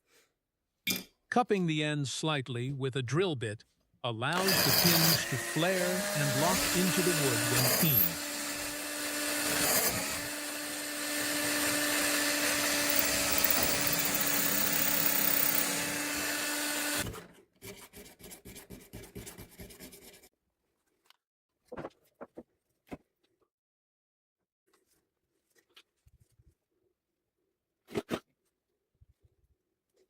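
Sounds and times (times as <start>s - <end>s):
electric drill running: 4.3s - 17.1s.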